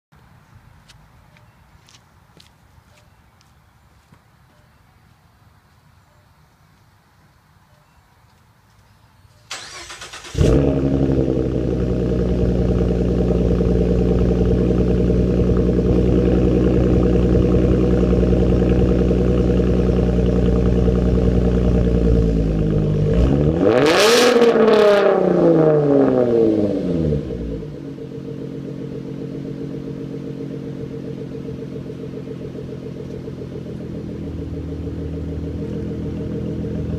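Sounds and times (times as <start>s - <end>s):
car engine starting and idling: 9.4s - 36.9s
car engine revving: 9.5s - 36.9s.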